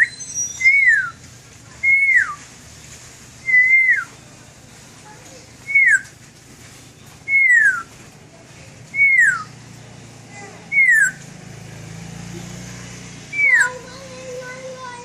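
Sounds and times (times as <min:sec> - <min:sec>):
bird whistling downward note: 0:00.0 - 0:01.2, 0:03.4 - 0:04.1, 0:07.3 - 0:07.9, 0:10.7 - 0:11.2, 0:13.3 - 0:13.7.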